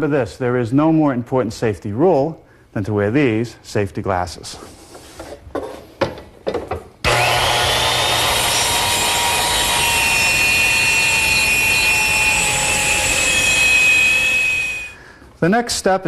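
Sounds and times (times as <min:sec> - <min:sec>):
circular saw cutting plywood: 0:07.0 - 0:15.0
steady high tone: 0:10.6 - 0:15.0.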